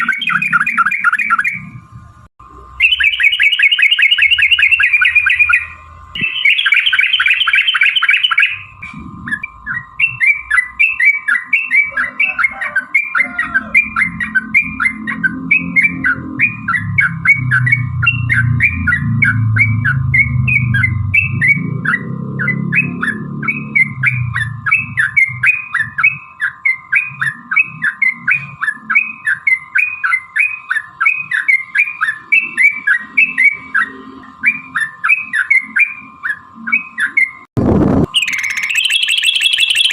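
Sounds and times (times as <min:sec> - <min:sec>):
bulbul singing chirping notes: 0:00.0 - 0:01.8, 0:02.6 - 0:37.4, 0:38.1 - 0:39.9
steady hum: 0:00.0 - 0:39.9
low rumble: 0:37.6 - 0:38.2.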